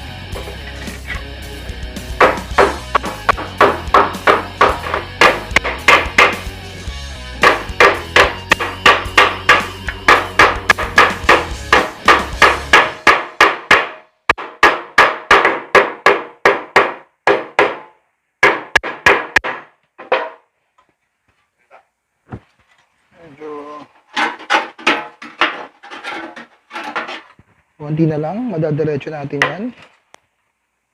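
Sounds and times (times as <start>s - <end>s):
hammering on sheet metal: 2.2s - 6.5s, 7.4s - 20.4s.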